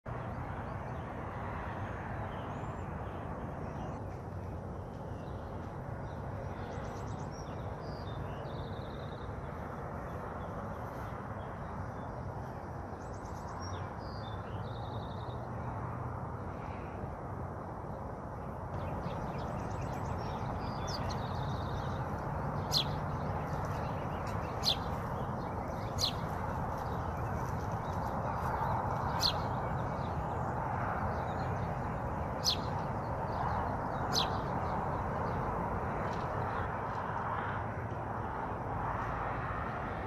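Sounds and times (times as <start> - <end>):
steady rushing noise: 15.4 - 40.0
birds chirping: 18.4 - 37.0
bird trill: 22.6 - 26.4.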